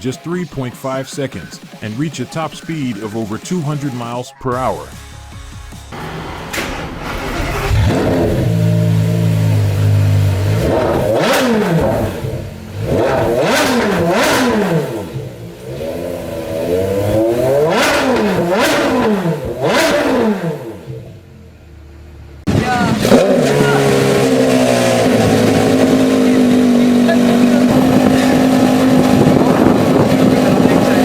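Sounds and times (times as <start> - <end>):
sports car engine idling: 5.8 - 19.9, 20.5 - 31.0
engine revving: 5.9 - 21.4, 22.0 - 31.0
sports car engine starting: 5.9 - 31.0.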